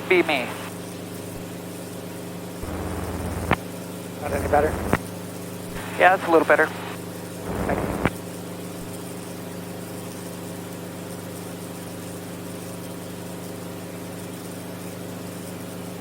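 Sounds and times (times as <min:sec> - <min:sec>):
crackly burst of noise: 0:02.6 - 0:03.6, 0:04.2 - 0:05.0, 0:05.7 - 0:08.2
helicopter engine and rotor drone: 0:02.6 - 0:03.6, 0:04.2 - 0:05.0, 0:05.7 - 0:09.0.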